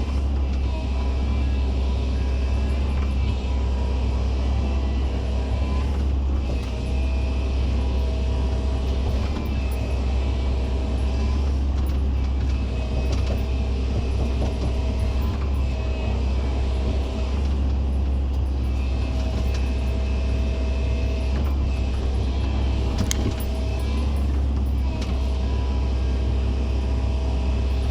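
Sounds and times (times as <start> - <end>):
excavator diesel engine running: 0.0 - 27.9
hydraulic whine: 0.0 - 27.9.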